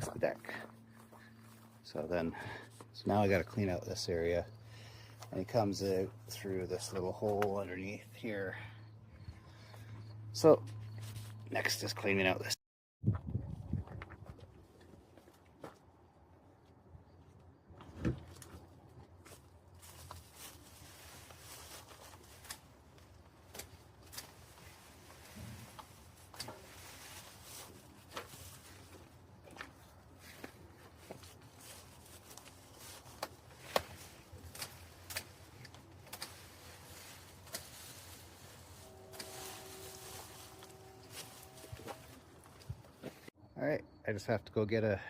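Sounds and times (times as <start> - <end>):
debris rustling and crackling: 18.2 - 43.3
two-tone hum with hiss: 34.6 - 43.3.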